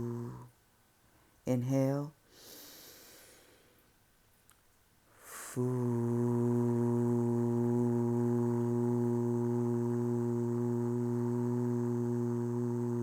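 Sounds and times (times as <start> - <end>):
person voicing long steady foo: 0.0 - 0.5, 1.5 - 2.2, 5.2 - 13.0.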